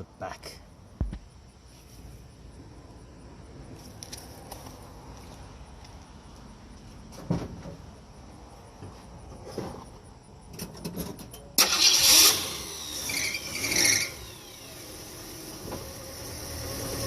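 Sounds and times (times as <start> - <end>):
car engine starting and idling: 10.6 - 17.0.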